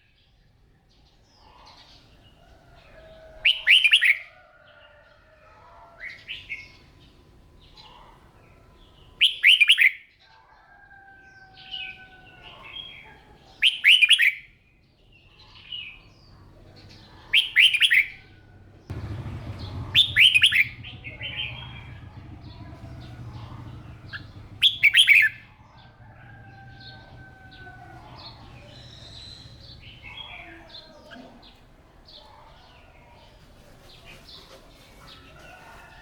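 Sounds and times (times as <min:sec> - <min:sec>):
bird singing warbled phrases: 0:15.2 - 0:33.3
soft bird chirps: 0:18.9 - 0:31.6.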